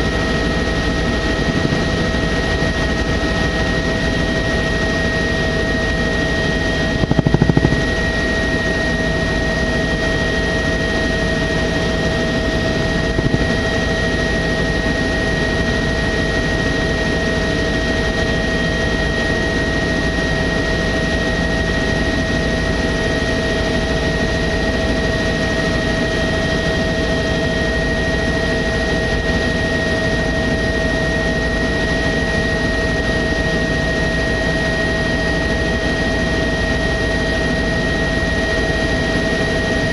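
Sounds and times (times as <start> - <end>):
helicopter engine and rotor: 0.0 - 39.9
high whine: 5.4 - 10.8, 11.5 - 14.3.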